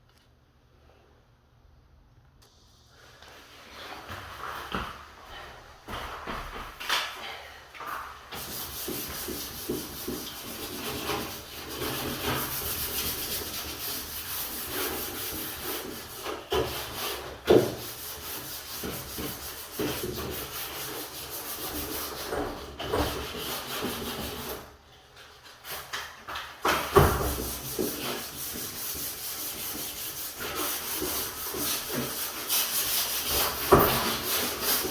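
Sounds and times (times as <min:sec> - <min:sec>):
scraping on wooden door: 0:26.6 - 0:34.9.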